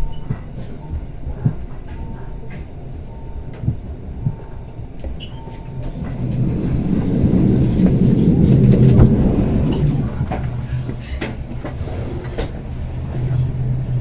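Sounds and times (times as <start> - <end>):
track and carriage clicks and knocks: 0.0 - 14.0
train rumbling on rails: 0.0 - 14.0.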